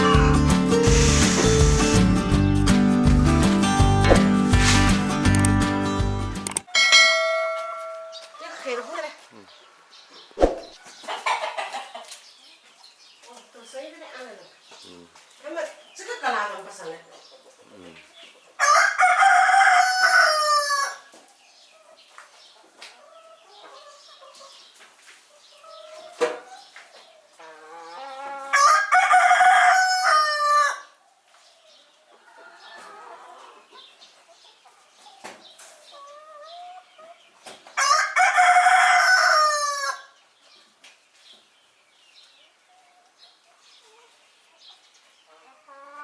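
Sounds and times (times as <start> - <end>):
hens clucking: 0.0 - 2.5, 10.4 - 18.8, 32.0 - 38.0, 45.3 - 46.0
chickens clucking and calling: 0.0 - 2.8, 8.1 - 46.0
rooster crowing: 18.6 - 21.0, 27.6 - 30.9, 37.8 - 40.1.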